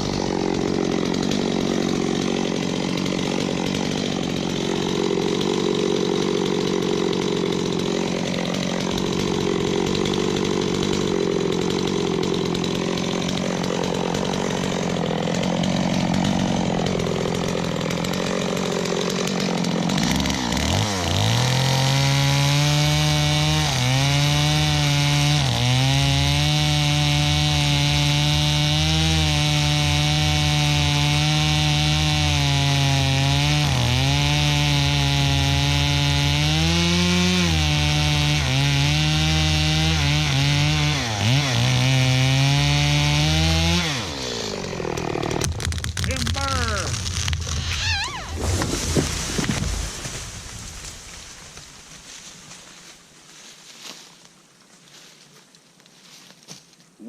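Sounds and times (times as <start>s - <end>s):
chainsaw cutting into tree: 0.0s - 54.3s.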